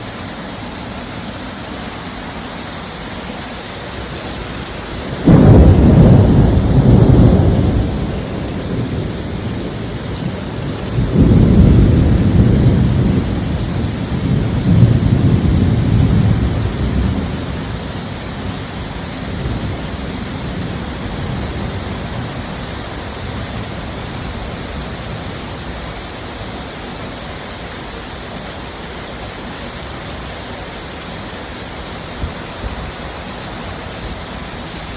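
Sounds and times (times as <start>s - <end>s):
heavy rain: 0.0s - 34.9s
thunder rumbling: 4.3s - 25.8s.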